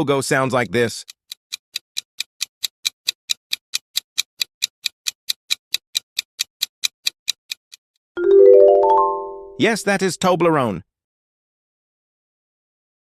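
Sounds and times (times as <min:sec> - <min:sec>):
clock-like timer ticking: 0:00.0 - 0:07.8.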